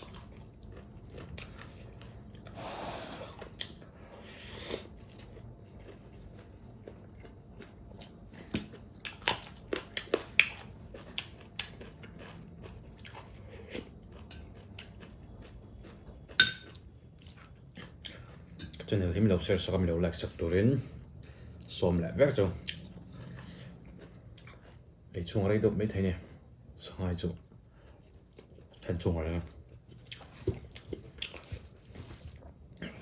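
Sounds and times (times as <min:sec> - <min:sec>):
food chewing and crunching: 0:00.0 - 0:33.0
soft breathy noises: 0:02.4 - 0:04.9
sharp ringing clink: 0:16.4 - 0:16.7.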